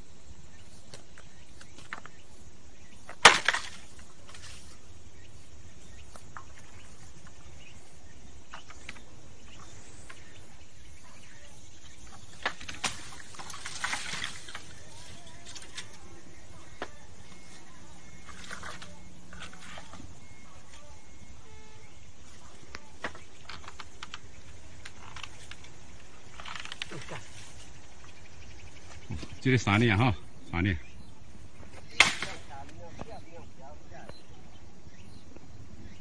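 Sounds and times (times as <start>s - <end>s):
steady outdoor hiss: 0.0s - 36.0s
rustling: 12.0s - 29.4s
sharp snap: 31.9s - 32.8s.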